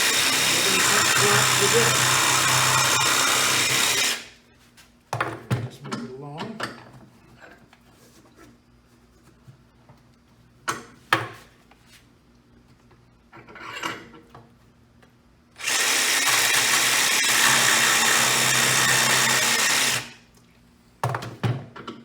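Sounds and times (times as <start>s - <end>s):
jigsaw cutting plastic: 0.0s - 4.3s, 15.6s - 20.2s.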